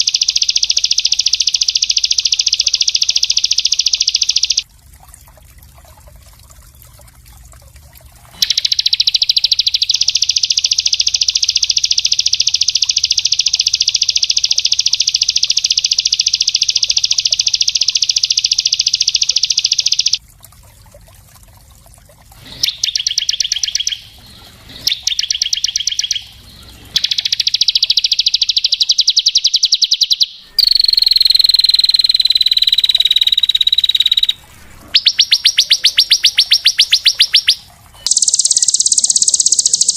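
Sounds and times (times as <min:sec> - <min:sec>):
songbird trilling: 0:00.0 - 0:04.6, 0:08.4 - 0:20.2, 0:22.6 - 0:39.9
bird call gliding down in pitch: 0:22.6 - 0:24.2, 0:24.8 - 0:39.9.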